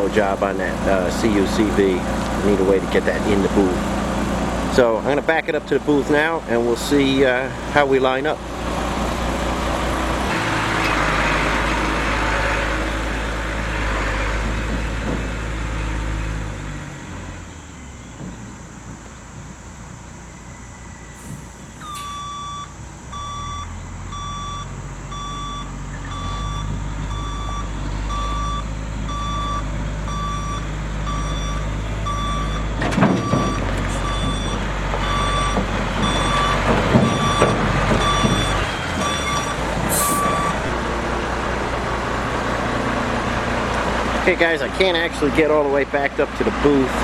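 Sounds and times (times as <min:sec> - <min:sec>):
truck reversing beeper: 0:00.0 - 0:18.8, 0:19.7 - 0:47.0
diesel engine running: 0:00.0 - 0:47.0
knocks and clunks: 0:09.6 - 0:16.6, 0:18.2 - 0:19.5, 0:26.0 - 0:44.2.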